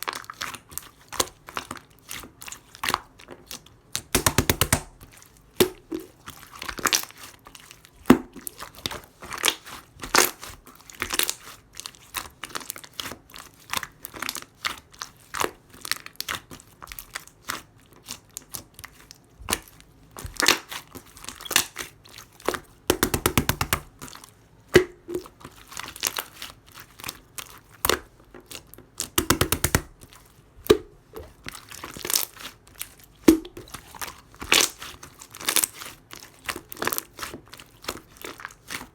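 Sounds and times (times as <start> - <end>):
slime squished by hand: 0.1 - 38.9
slime crackling pops: 4.0 - 5.0.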